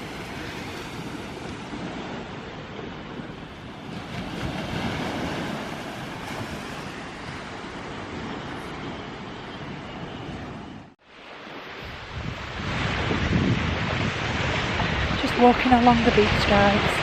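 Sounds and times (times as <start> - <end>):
sea waves washing on beach: 0.0 - 17.0
wind buffeting microphone: 11.7 - 17.0.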